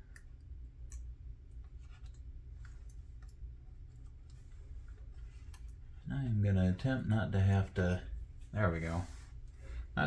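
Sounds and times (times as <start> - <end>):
small clicks and ticks: 0.0 - 5.8
low steady hum: 0.0 - 10.0.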